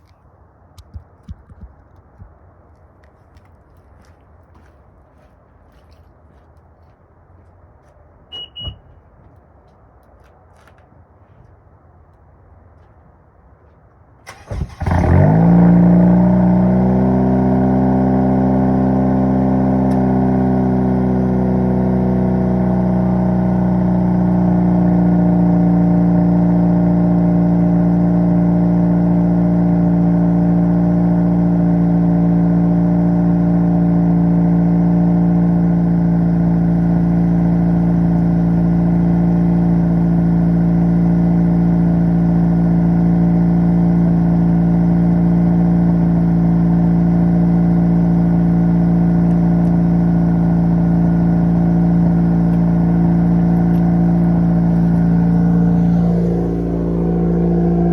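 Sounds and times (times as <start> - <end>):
car engine idling fast: 14.2 - 57.9.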